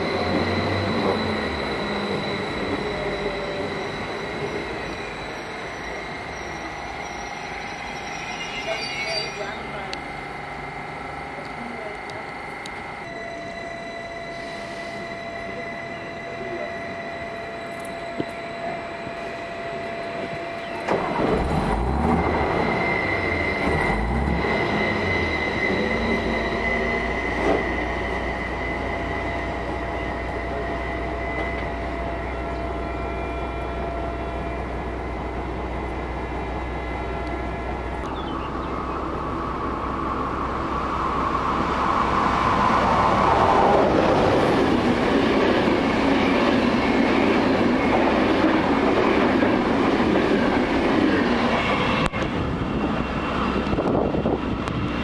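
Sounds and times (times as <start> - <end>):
high whistle tones: 0.0 - 21.3, 21.9 - 39.0
train passing at speed: 0.0 - 55.0
electric train motor hum: 9.4 - 14.4.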